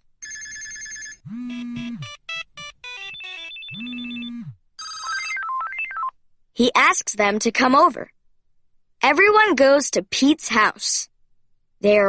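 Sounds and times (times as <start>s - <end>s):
electronic ringtone beeps: 0.2s - 6.1s
low held hums: 3.8s - 4.7s.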